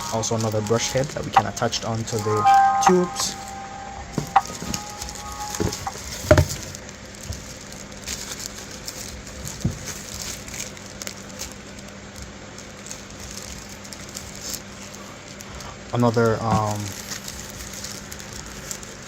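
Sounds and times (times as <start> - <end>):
plastic packaging crackling: 0.0 - 2.3, 3.1 - 19.0.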